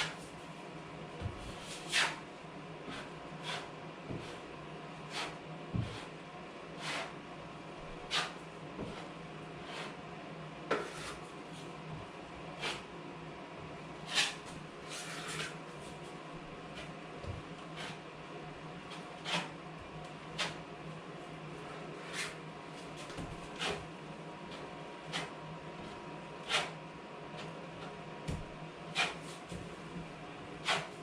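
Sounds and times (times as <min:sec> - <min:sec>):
scraping on drywall: 0:01.4 - 0:02.3, 0:02.9 - 0:04.4, 0:05.0 - 0:06.2, 0:06.8 - 0:07.2, 0:08.0 - 0:10.0, 0:10.7 - 0:11.3, 0:12.6 - 0:12.9, 0:14.0 - 0:16.1, 0:16.7 - 0:18.1, 0:18.8 - 0:20.7, 0:21.6 - 0:23.9, 0:24.5 - 0:26.8, 0:27.4 - 0:29.8, 0:30.6 - 0:31.0.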